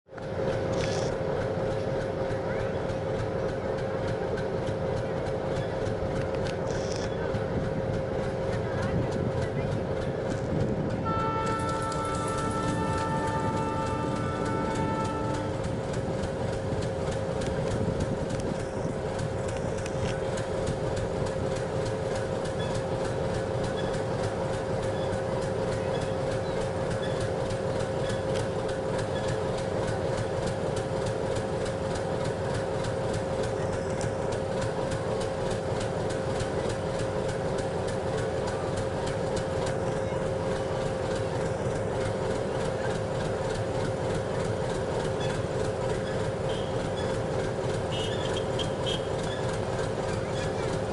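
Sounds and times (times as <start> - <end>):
constant high whine: 0.1 - 50.9
diesel locomotive idling: 0.1 - 50.9.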